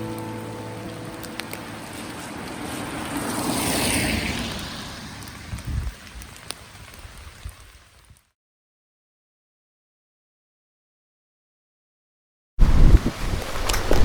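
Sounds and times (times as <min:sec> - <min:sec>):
rain pattering: 0:00.0 - 0:08.3, 0:12.6 - 0:14.0
low thumps and clicks: 0:12.6 - 0:14.0.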